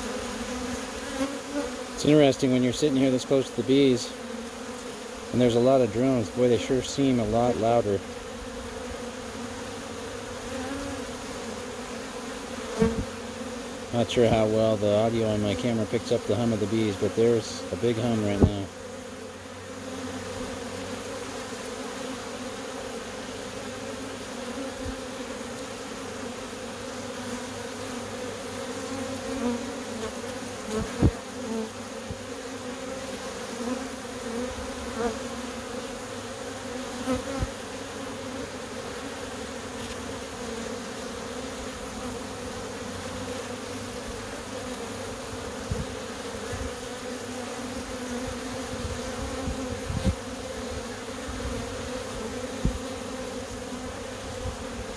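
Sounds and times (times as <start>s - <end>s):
bees humming: 0.0s - 54.9s
loud bee buzzes: 0.0s - 54.9s.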